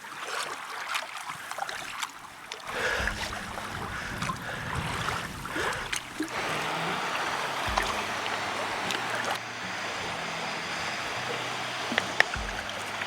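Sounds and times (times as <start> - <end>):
water splashing around kayak: 0.0 - 13.0
low rumble: 2.7 - 9.4.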